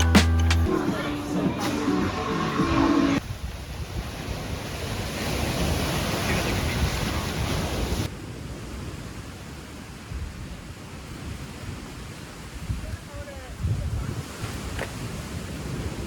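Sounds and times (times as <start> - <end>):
wind buffeting microphone: 3.2 - 16.0.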